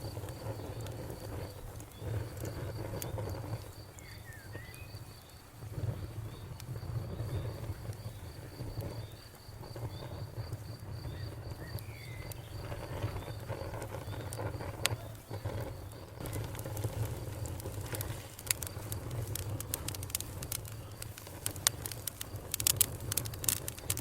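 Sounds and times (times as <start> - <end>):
campfire crackling and popping: 0.0 - 24.0
cricket chirping: 0.0 - 24.0.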